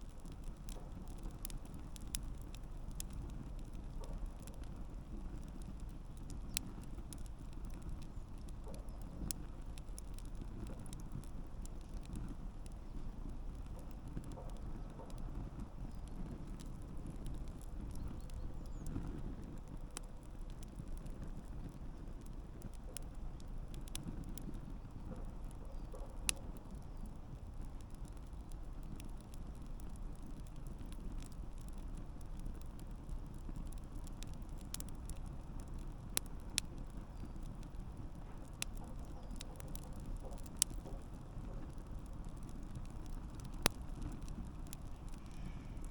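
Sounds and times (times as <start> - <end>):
burning wood crackling and popping: 0.0 - 45.9
campfire flames rumbling: 0.0 - 45.9.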